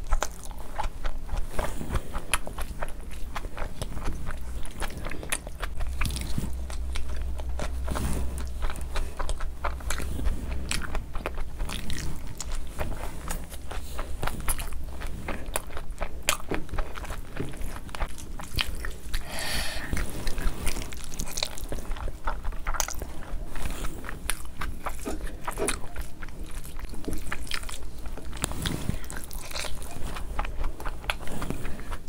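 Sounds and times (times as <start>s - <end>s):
low steady hum: 0.0s - 32.0s
wet chewing and mouth sounds: 0.0s - 32.0s.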